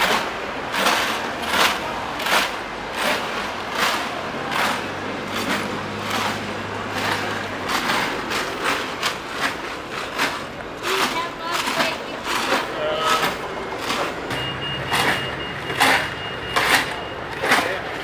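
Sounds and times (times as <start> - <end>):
vehicle engine running low: 0.0 - 9.5, 13.5 - 18.0
regular scraping or rustling: 0.0 - 18.0
traffic noise: 0.0 - 18.0.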